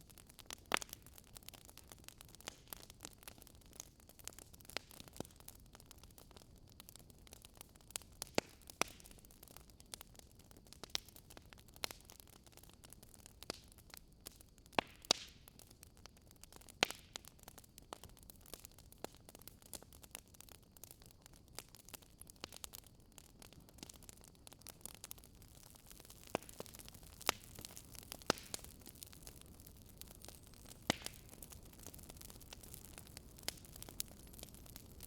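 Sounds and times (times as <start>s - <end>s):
faint steady hiss: 0.0s - 35.0s
wood fire crackling: 0.0s - 35.0s.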